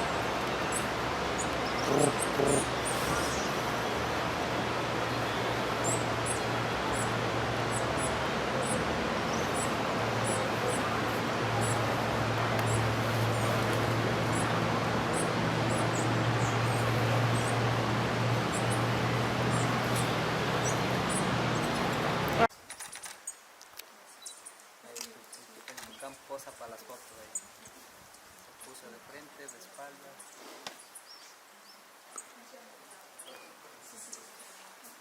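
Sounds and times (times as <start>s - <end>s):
steady hiss and low hum: 0.0s - 22.5s.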